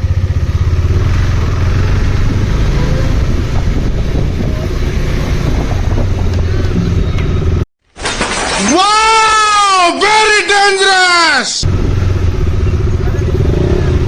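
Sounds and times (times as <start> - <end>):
motorcycle engine rumbling: 0.0 - 7.6, 11.6 - 14.0.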